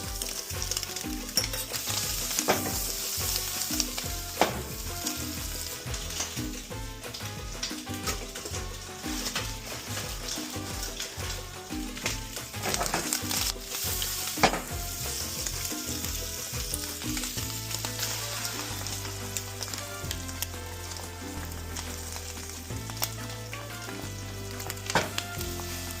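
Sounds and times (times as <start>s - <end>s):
stirring: 0.0s - 24.0s
food sizzling in a pan: 0.0s - 26.0s
utensil knocking: 1.4s - 5.6s, 7.4s - 16.2s.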